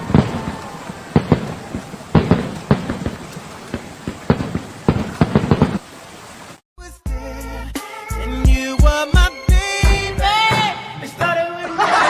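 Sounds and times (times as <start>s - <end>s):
irregular knocks and thumps: 0.0s - 6.6s
steady hiss: 0.0s - 6.6s.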